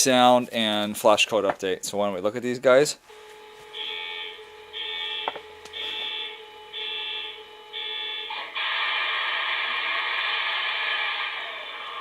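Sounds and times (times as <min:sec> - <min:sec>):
steady low hum: 0:00.0 - 0:12.0
alarm-like beeps: 0:03.4 - 0:09.8.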